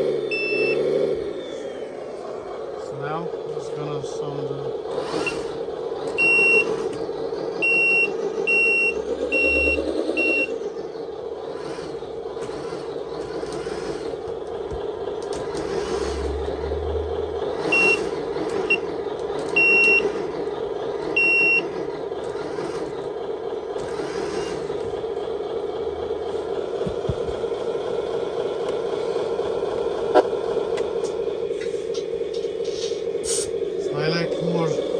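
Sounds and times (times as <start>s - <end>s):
simulated diesel engine idling: 0.0s - 34.9s
electronic reversing beeps: 0.3s - 1.1s, 6.2s - 6.8s, 7.6s - 10.6s, 16.1s - 18.9s, 19.6s - 20.2s, 21.2s - 21.8s.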